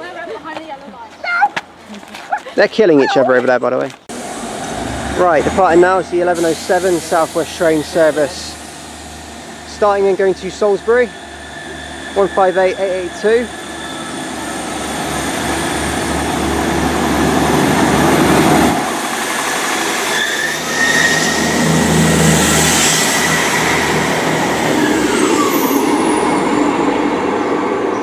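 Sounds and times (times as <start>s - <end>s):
diesel train engines: 4.1s - 28.0s
train wheel squeal: 6.9s - 16.4s, 19.4s - 28.0s.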